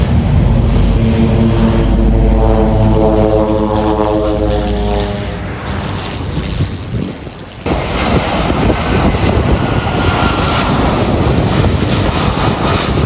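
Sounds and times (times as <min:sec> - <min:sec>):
airliner engine rumble: 0:00.0 - 0:13.0.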